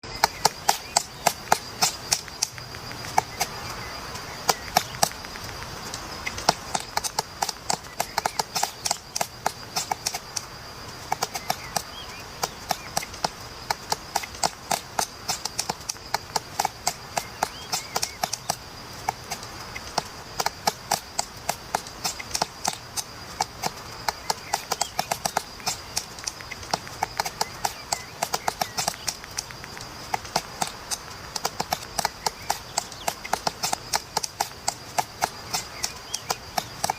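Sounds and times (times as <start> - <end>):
woodpecker pecking at wood: 0.0 - 36.9.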